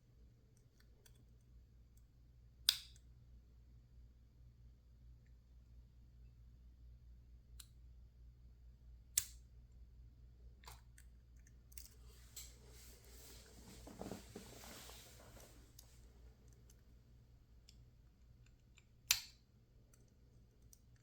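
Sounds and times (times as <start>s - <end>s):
rustling and shuffling: 11.9s - 17.0s
lock picking clicks: 17.6s - 21.0s.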